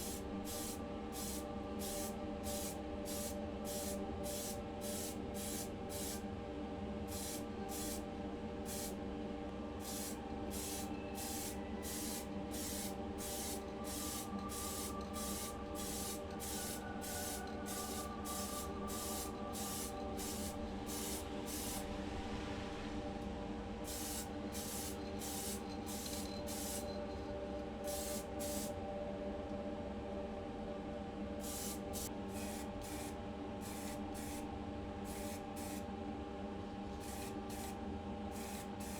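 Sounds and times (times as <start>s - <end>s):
paint spray hissing: 0.0s - 6.2s, 7.1s - 8.0s, 9.8s - 21.8s, 23.9s - 26.9s, 27.9s - 28.7s, 31.4s - 34.4s, 35.1s - 35.8s, 37.0s - 37.8s, 38.4s - 38.9s
steady hum: 0.0s - 38.9s.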